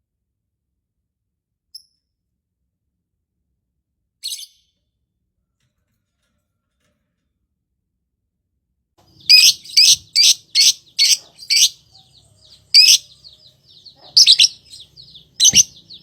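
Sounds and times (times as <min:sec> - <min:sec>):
lovebird chirping: 0:04.2 - 0:04.7, 0:09.1 - 0:16.0.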